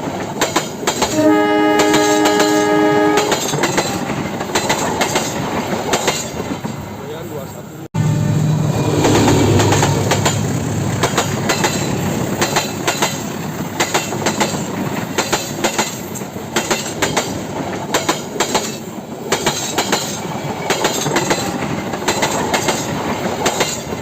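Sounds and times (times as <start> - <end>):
wheels clacking over rail joints: 0.0 - 1.2, 1.8 - 6.9, 9.0 - 24.0
train rumbling past: 0.0 - 24.0.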